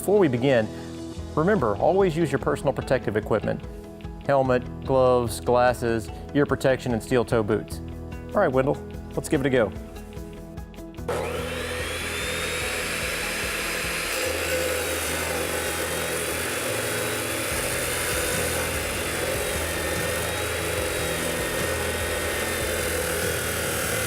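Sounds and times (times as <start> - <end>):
abrasive wheel cutting pipe: 11.1 - 24.0
cutoff saw whining: 11.1 - 24.0.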